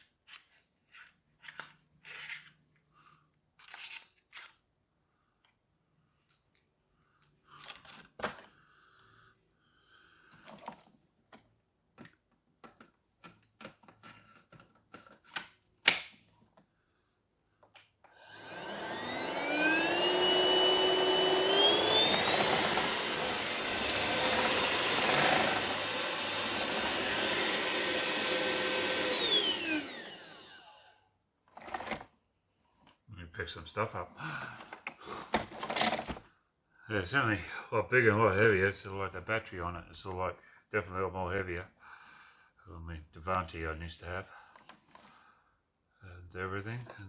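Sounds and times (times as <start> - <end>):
cordless vacuum motor whine: 18.1 - 31.0.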